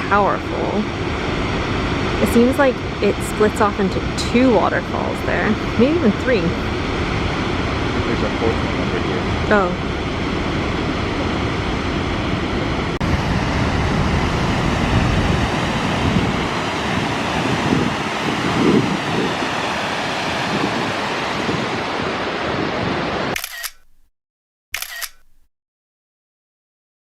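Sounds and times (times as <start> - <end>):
wind buffeting microphone: 0.0 - 23.4
waterfall roaring: 10.7 - 23.3.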